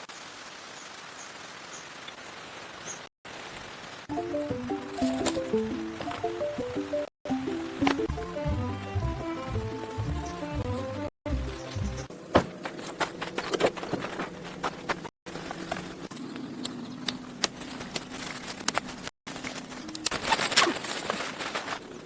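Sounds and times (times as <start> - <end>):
music: 4.1 - 12.1.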